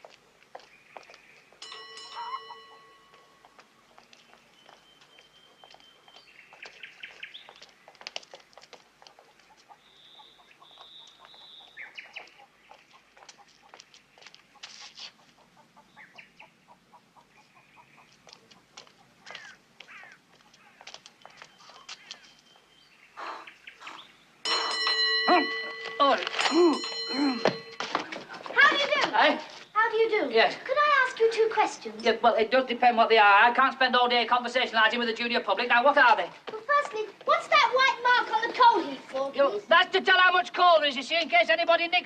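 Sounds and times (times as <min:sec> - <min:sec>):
birds chirping and trilling: 0:00.5 - 0:14.6, 0:15.2 - 0:25.9.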